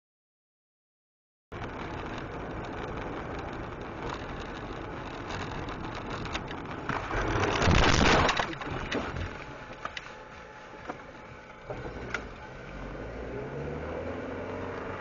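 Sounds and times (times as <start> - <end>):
car road noise from inside: 1.6 - 15.0.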